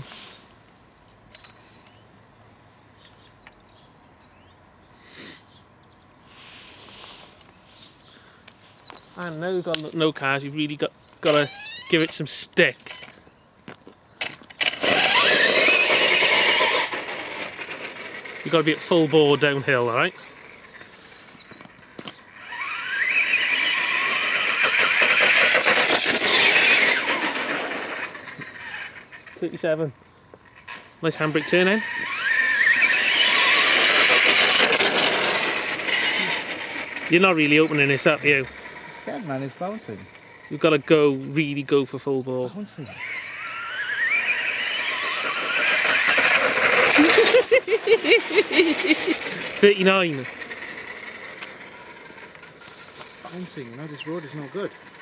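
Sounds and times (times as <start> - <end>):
soft rushing hiss: 0.0 - 3.0, 6.0 - 10.3
electric motor whining: 11.2 - 13.2, 14.3 - 29.8, 30.5 - 41.4, 42.8 - 55.0
small bird twittering: 16.3 - 26.9, 42.4 - 47.4, 48.8 - 55.0.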